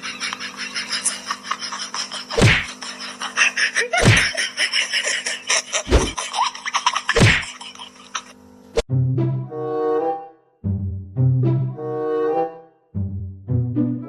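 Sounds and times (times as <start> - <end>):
orchestral music with timpani: 8.9 - 14.0.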